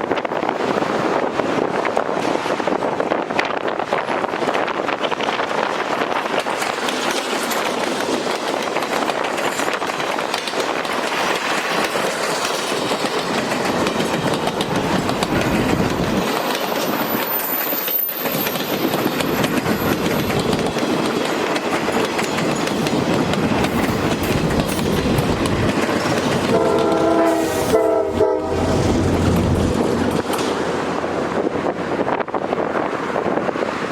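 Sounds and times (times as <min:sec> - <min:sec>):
train rolling on rails: 0:00.0 - 0:33.9
locomotive air horn chord: 0:26.5 - 0:29.0.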